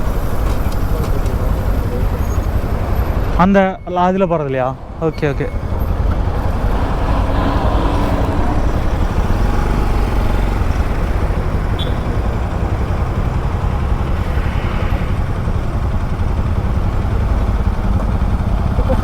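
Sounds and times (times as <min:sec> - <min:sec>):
wind and road noise: 0:00.0 - 0:19.0
motorcycle engine running: 0:04.3 - 0:19.0.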